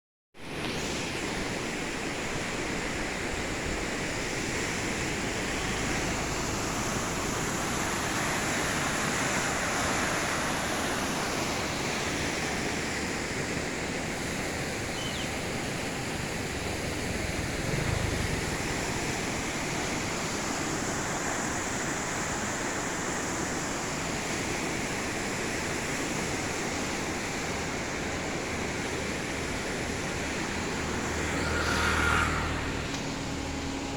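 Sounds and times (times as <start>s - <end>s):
low rumble: 16.4s - 20.2s
heavy rain pouring: 16.4s - 20.8s.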